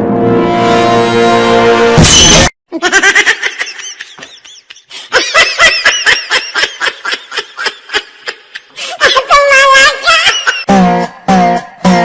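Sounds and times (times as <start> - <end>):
high-pitched laughter: 2.7 - 10.7.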